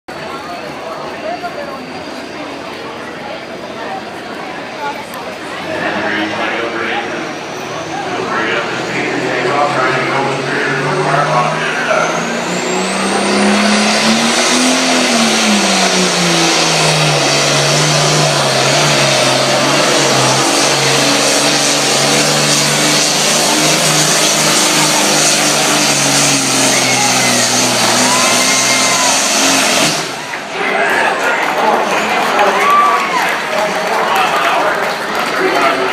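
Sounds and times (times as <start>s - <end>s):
tractor engine at full throttle: 0.1s - 35.9s
high whine: 5.4s - 31.1s.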